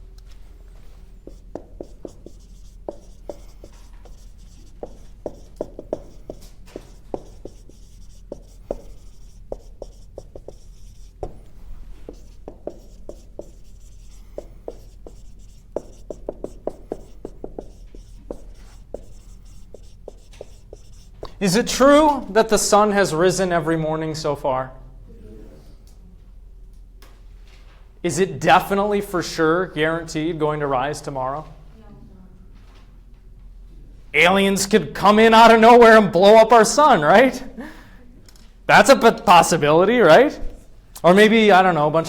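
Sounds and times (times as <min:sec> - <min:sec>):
marker squeaking on a board: 0:00.9 - 0:21.8.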